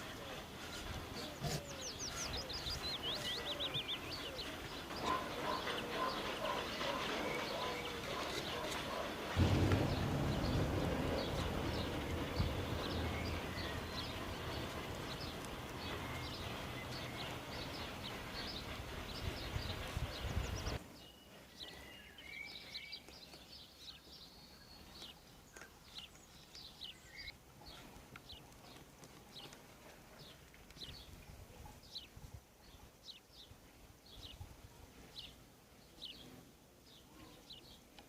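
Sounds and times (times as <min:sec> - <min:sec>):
small birds chirping: 0:00.0 - 0:38.0
steady rumbling background noise: 0:09.4 - 0:19.4.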